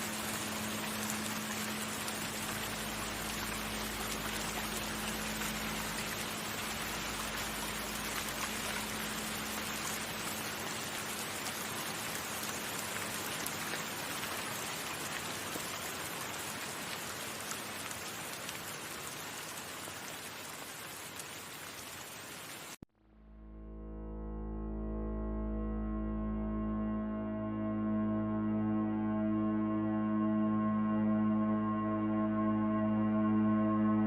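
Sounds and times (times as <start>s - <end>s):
low steady hum: 0.0s - 11.8s, 23.0s - 34.0s
heavy rain: 0.0s - 22.8s
deep droning tone: 23.0s - 34.0s.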